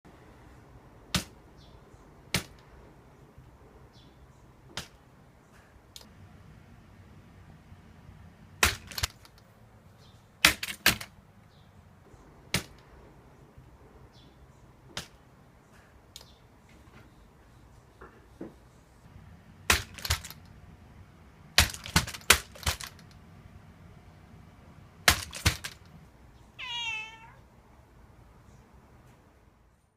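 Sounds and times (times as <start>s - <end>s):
cat meowing: 26.6s - 27.5s.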